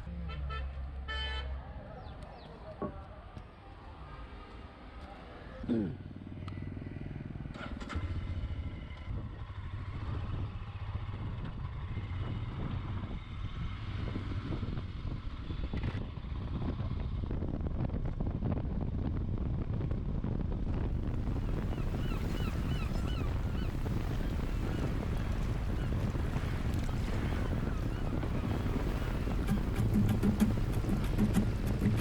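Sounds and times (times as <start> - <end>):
wind noise: 8.7 - 32.0.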